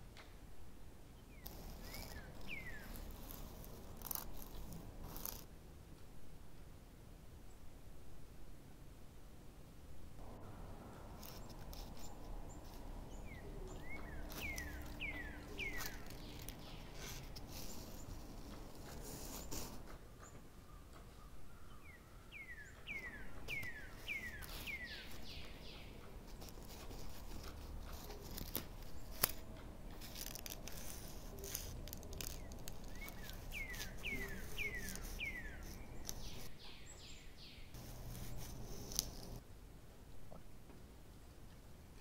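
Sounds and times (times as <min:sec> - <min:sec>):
outdoor background noise: 0:00.0 - 0:42.0
bird whistling calls: 0:13.1 - 0:17.8, 0:21.2 - 0:25.9, 0:32.2 - 0:37.7.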